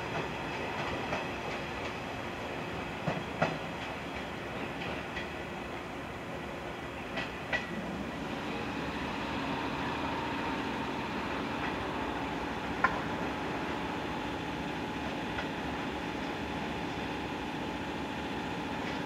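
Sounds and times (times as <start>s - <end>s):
electric train running: 7.2s - 19.0s.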